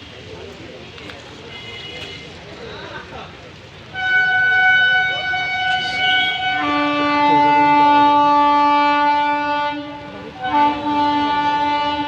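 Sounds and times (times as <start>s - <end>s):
electric locomotive horn blasts: 4.0s - 12.0s.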